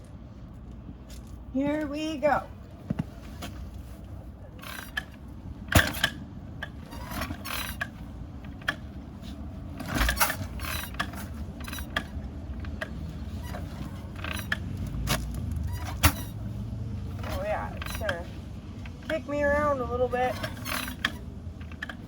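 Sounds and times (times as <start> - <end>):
motorcycle kick-starter clanks: 4.6 - 22.0.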